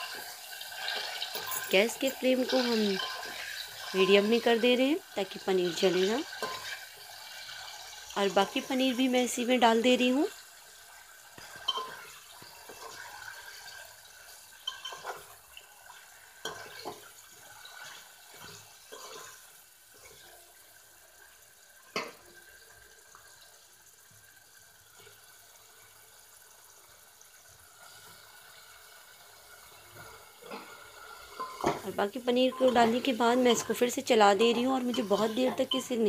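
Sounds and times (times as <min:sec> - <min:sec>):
food sizzling in oil: 0:00.0 - 0:36.0
knocks and scrapes against pan: 0:30.0 - 0:31.9.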